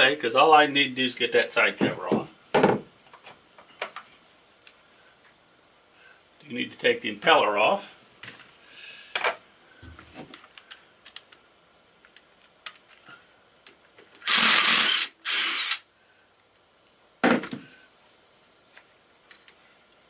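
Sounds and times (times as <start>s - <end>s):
power drill bursts: 14.2s - 15.8s.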